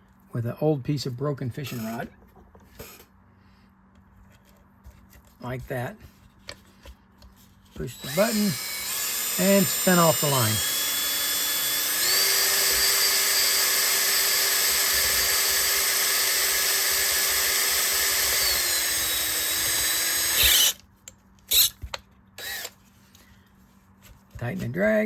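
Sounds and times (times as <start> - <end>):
electric drill running: 7.9 - 20.8, 21.5 - 21.8, 22.4 - 22.8.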